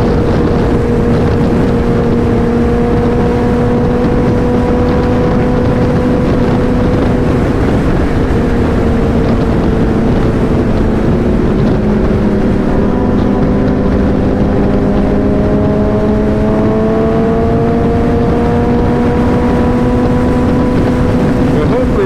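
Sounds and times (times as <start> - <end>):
heavy wind noise: 0.0 - 22.0
motorcycle engine cruising: 0.0 - 22.0.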